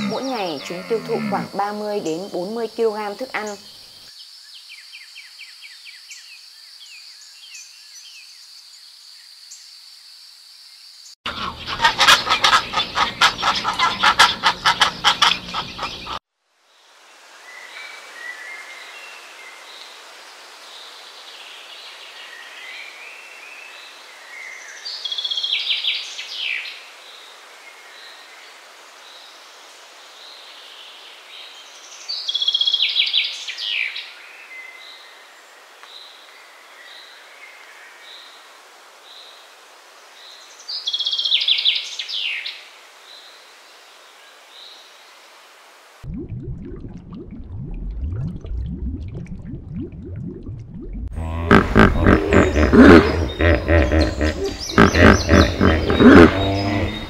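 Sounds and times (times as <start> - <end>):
steady outdoor hiss: 0.0 - 46.1, 51.2 - 57.0
low loud sound: 46.1 - 57.0
songbird buzzy trill: 51.2 - 57.0.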